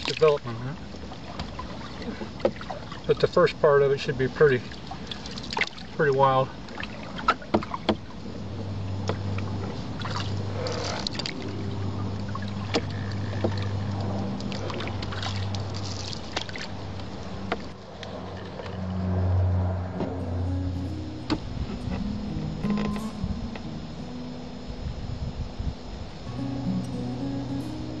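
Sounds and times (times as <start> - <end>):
paddle knocking against hull: 1.3 - 3.0, 6.7 - 8.1, 12.6 - 13.8
low engine drone: 5.9 - 28.0.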